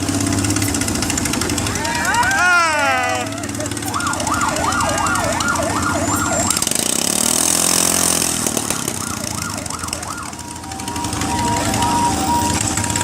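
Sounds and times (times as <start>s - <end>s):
siren yelping: 1.8s - 6.7s, 8.6s - 13.0s.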